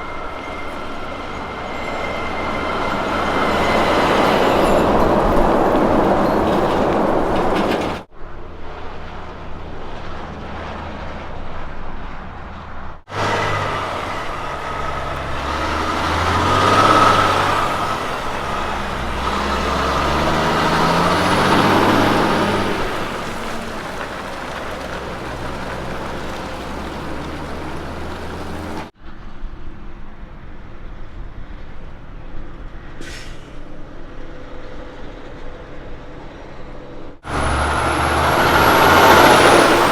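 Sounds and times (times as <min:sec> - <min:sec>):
diesel trucks driving past: 0:00.0 - 0:39.9
brief high hiss: 0:33.0 - 0:33.6.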